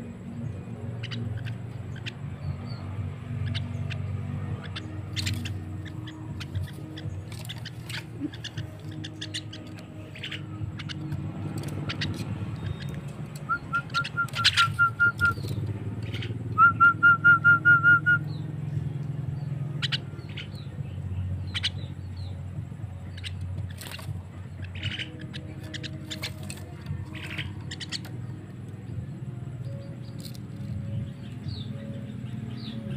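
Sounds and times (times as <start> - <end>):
myna chirps and clicks: 1.0 - 16.6, 23.0 - 28.4
myna whistled notes: 13.4 - 15.6, 16.5 - 18.4.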